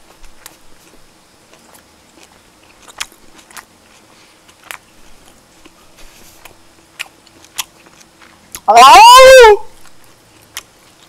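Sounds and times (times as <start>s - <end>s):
person chewing food: 0.0s - 8.7s, 9.8s - 11.0s.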